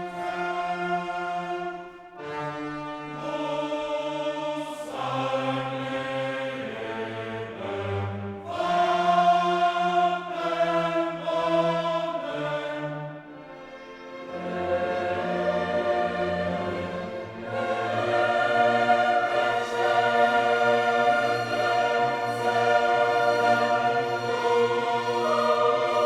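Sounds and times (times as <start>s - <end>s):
choir singing: 0.0s - 26.0s
orchestra playing: 13.4s - 26.0s.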